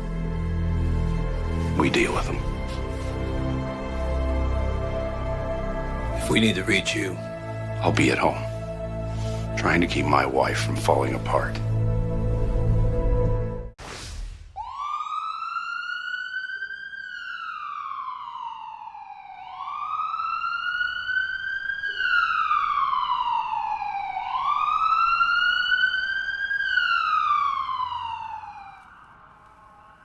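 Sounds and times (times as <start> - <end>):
siren wailing: 14.6 - 30.0.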